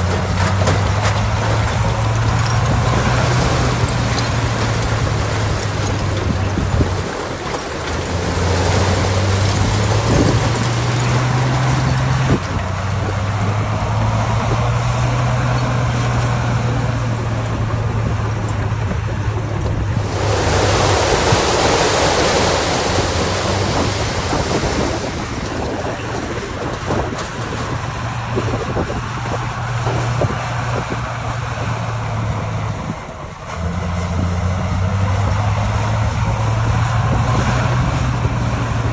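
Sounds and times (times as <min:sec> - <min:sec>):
heavy machinery diesel engine: 0:00.0 - 0:38.9
loud rushing noise: 0:19.8 - 0:26.7.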